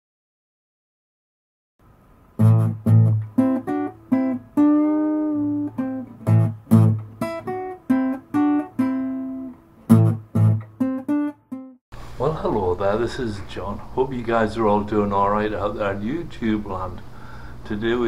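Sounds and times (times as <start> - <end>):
acoustic guitar plucked notes: 2.4 - 11.8.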